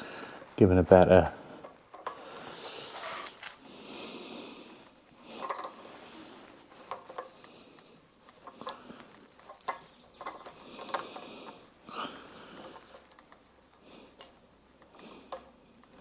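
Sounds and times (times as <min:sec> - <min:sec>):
plumbing fitting clicking and scraping: 0:05.3 - 0:11.7.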